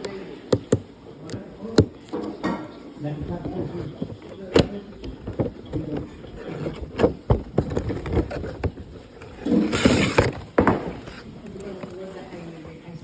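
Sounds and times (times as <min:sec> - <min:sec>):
plastic and cardboard clicks: 0:00.0 - 0:02.3
packaging rustling: 0:03.3 - 0:11.3.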